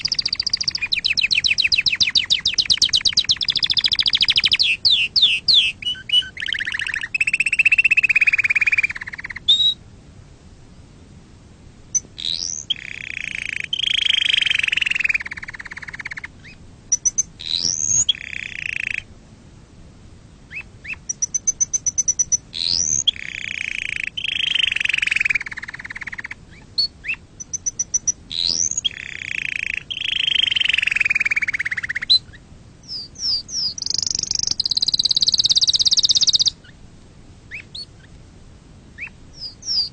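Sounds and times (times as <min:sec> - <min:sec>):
canary singing trills: 0:00.0 - 0:09.8, 0:11.9 - 0:19.1, 0:20.5 - 0:36.8, 0:37.5 - 0:38.2, 0:38.9 - 0:39.9.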